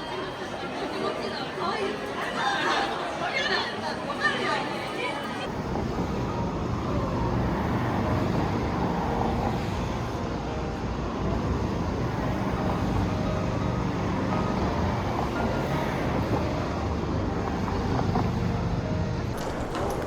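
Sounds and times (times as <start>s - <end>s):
road traffic hum: 5.4s - 20.0s.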